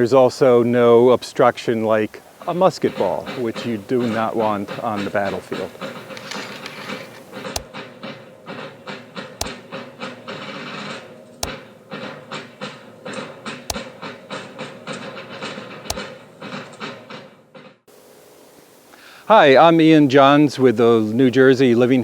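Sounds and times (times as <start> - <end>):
metal clicks and rattles: 2.9 - 17.8
ramrod striking barrel with metallic ping: 9.4 - 9.7, 11.4 - 11.7.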